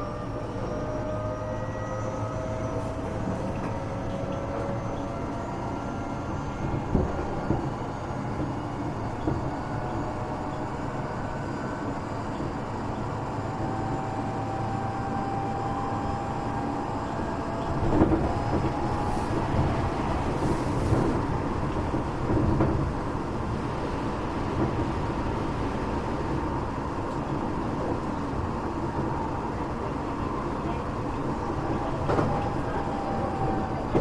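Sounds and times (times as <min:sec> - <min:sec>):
train wheels rumbling on rail: 0:00.0 - 0:34.0
heavy train knocks: 0:06.7 - 0:10.2, 0:17.6 - 0:23.4.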